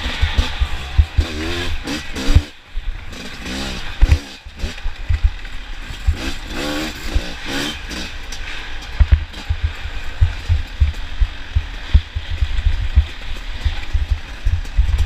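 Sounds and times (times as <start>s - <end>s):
motorcycles revving past: 0.0s - 13.9s
low thumps: 9.0s - 15.0s.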